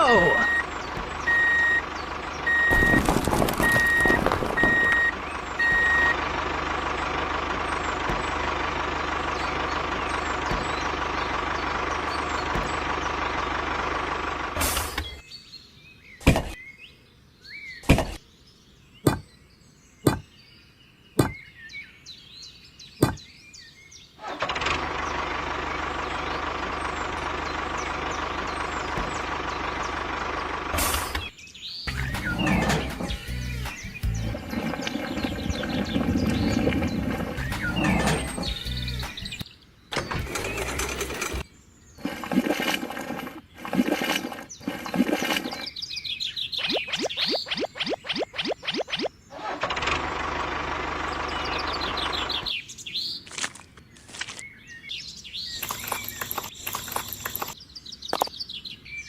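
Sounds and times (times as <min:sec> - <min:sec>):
reversing alarm beeping: 0:00.0 - 0:06.2
diesel engine running: 0:00.0 - 0:15.2, 0:24.2 - 0:52.6, 0:55.5 - 0:57.6
sharp knocks: 0:19.1 - 0:19.3, 0:20.1 - 0:20.3, 0:21.2 - 0:21.4, 0:23.0 - 0:23.2.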